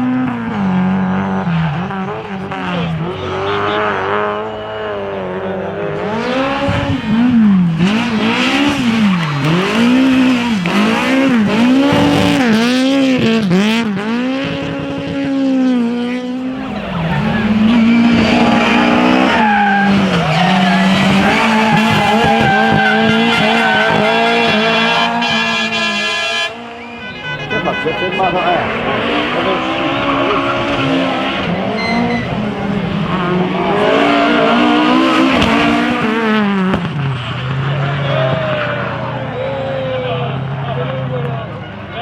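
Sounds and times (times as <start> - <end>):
car engine revving: 0.0 - 39.4
tyres squealing: 16.6 - 26.1, 26.8 - 35.3.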